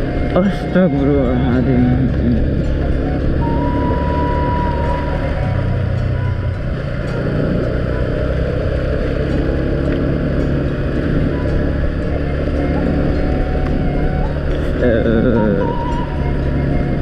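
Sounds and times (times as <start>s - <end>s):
thin high tone: 0.0s - 8.2s
road noise: 0.0s - 17.0s
vehicle engine running: 0.0s - 17.0s.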